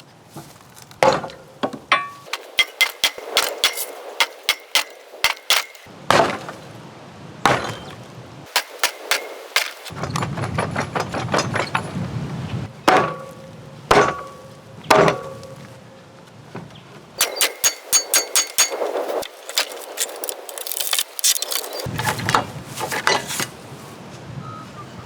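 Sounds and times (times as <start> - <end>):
metallic ringing: 1.1 - 5.9, 17.2 - 19.2.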